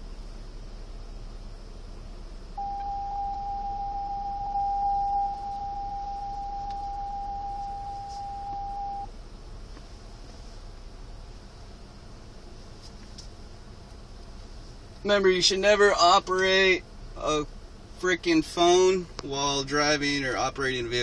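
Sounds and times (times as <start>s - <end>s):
parking sensor steady beep: 2.6s - 9.1s.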